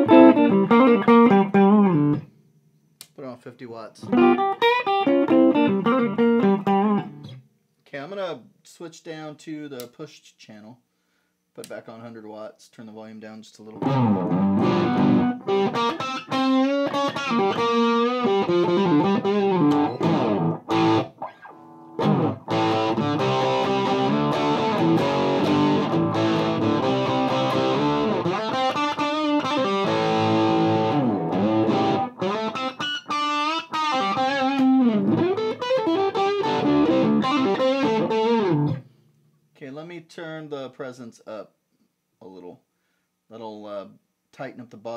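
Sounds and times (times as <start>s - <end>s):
distorted electric guitar riffs: 0.0s - 2.2s, 4.0s - 7.4s, 13.8s - 38.9s.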